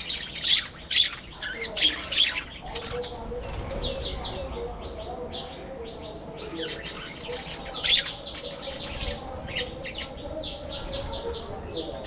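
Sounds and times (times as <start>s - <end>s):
budgerigars chirping: 0.0s - 3.2s.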